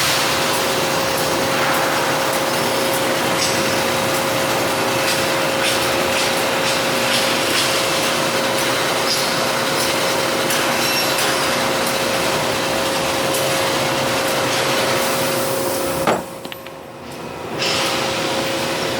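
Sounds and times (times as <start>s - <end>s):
machine humming and whirring: 0.0s - 18.9s.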